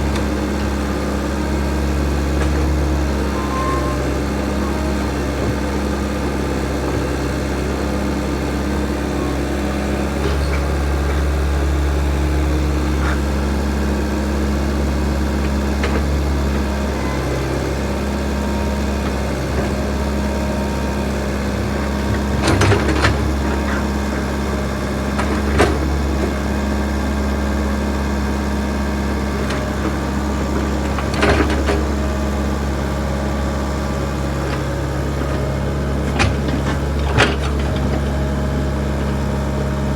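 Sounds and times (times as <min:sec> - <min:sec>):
backhoe diesel engine running: 0:00.0 - 0:39.9
machine clanks and knocks: 0:21.9 - 0:23.9, 0:35.2 - 0:39.2.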